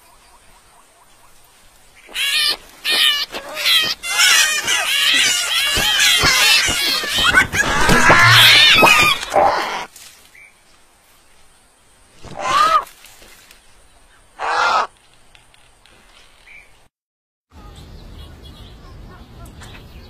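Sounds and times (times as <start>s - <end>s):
high gliding bird calls: 2.0s - 10.5s
short harsh bird calls: 2.0s - 10.5s.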